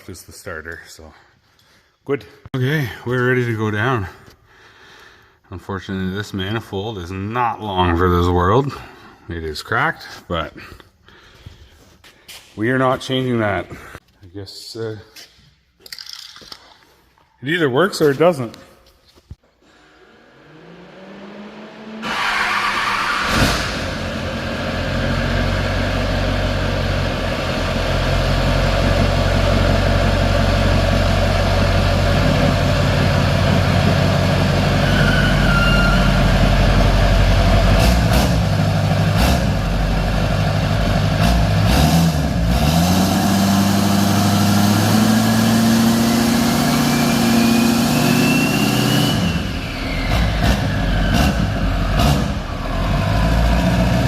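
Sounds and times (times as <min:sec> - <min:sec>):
rising whine: 0:19.8 - 0:28.6
truck engine running: 0:23.9 - 0:54.0.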